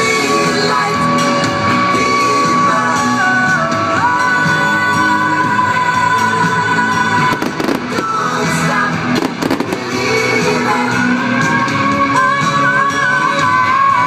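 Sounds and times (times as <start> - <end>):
music: 0.0 - 14.0
fireworks bangs and crackles: 7.3 - 10.3.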